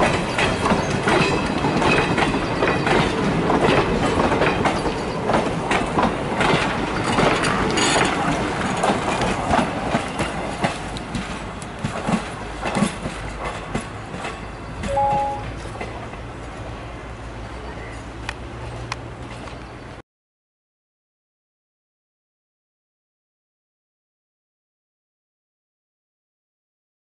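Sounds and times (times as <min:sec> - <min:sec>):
train wheels clattering over rail joints: 0:00.0 - 0:14.9.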